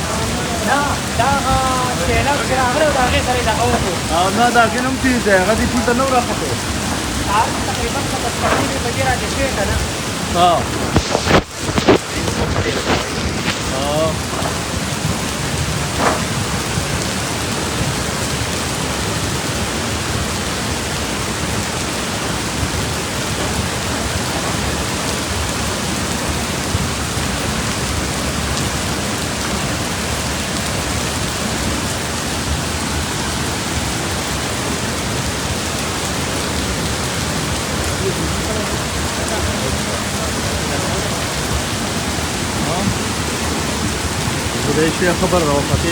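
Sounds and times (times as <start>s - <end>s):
rushing water: 0.0s - 45.9s.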